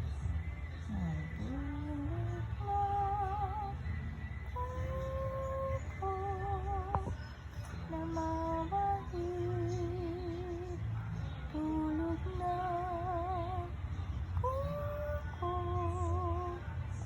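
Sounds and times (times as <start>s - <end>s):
woman humming a lullaby: 0.9s - 3.7s.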